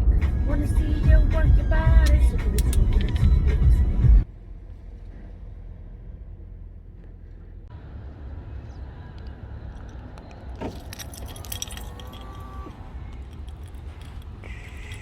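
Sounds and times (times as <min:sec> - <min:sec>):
car cabin rumble: 0:00.0 - 0:07.7
metallic jingling and clicking: 0:02.0 - 0:03.6, 0:10.6 - 0:15.0.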